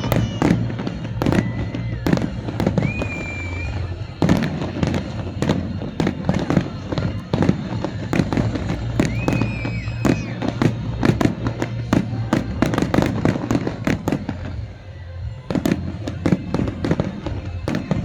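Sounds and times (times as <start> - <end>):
high whistle: 0.0 - 7.5, 8.2 - 10.7
fireworks bangs and crackles: 0.0 - 18.0.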